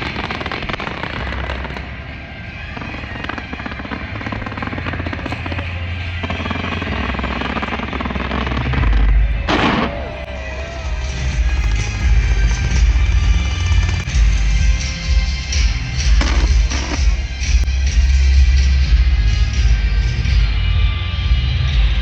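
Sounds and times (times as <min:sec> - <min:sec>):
fireworks crackling and booming: 0:00.0 - 0:22.0.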